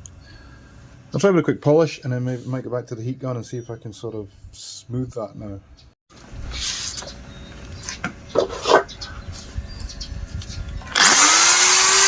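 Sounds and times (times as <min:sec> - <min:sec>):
multi-tool motor whine: 0:10.8 - 0:12.0.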